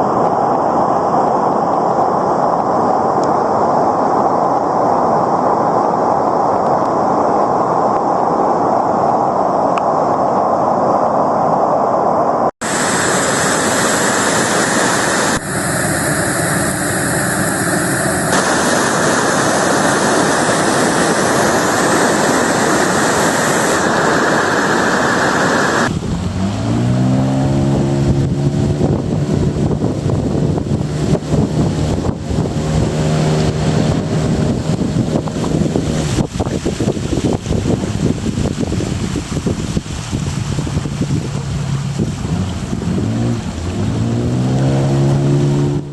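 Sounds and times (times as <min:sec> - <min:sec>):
river rapids rushing: 0:12.6 - 0:26.8
engine speeding up: 0:22.4 - 0:36.3, 0:40.4 - 0:45.9.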